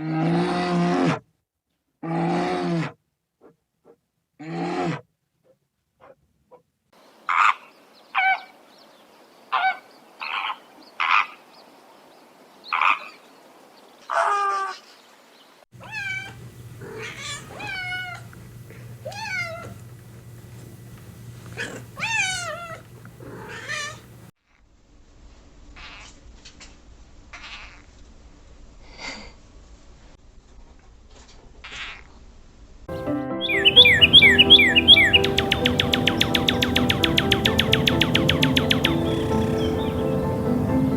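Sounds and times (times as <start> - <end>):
cat meowing: 15.8 - 18.3, 19.0 - 19.8, 21.6 - 24.0
steady low hum: 15.8 - 24.3.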